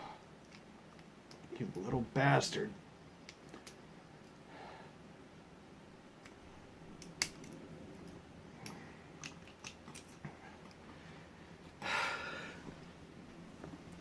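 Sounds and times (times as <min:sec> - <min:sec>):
person exhaling: 0:11.8 - 0:12.6.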